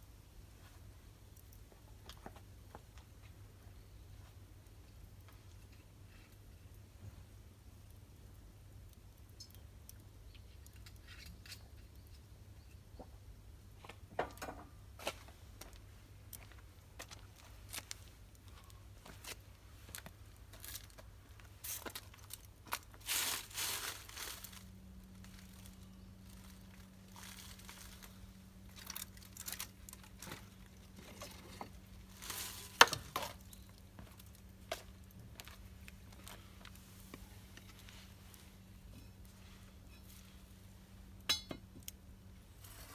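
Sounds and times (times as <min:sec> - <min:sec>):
crinkling and rustling: 0:17.0 - 0:40.6.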